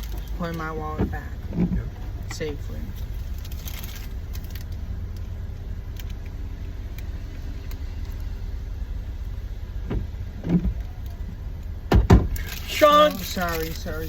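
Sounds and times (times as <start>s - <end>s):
car engine idling: 0.0s - 14.0s
short thumps: 0.8s - 2.5s.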